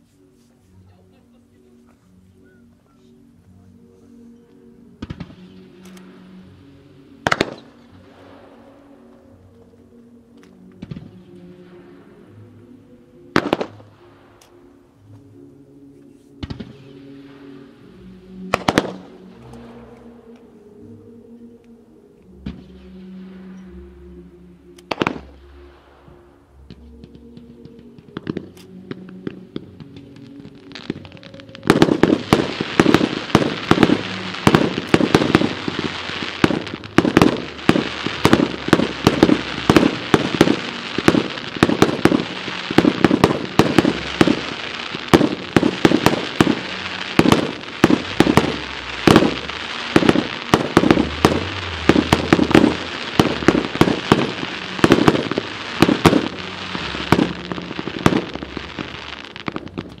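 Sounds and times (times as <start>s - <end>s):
fireworks bangs and crackles: 5.0s - 6.0s, 7.2s - 8.6s, 13.4s - 13.9s, 16.4s - 17.0s, 18.5s - 19.9s, 24.9s - 25.4s, 26.7s - 60.0s.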